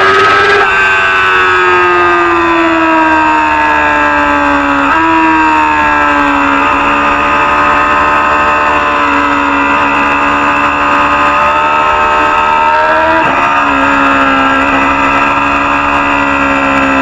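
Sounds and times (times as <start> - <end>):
motorcycle engine at high revs: 0.0 - 17.0.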